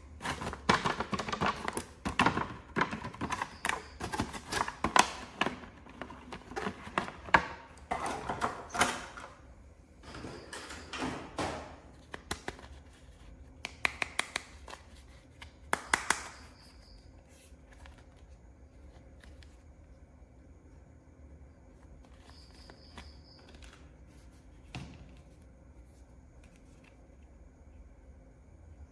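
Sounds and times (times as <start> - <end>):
faint room noise: 0.0 - 28.9
sharp plastic clicks: 13.6 - 14.8, 15.7 - 16.5.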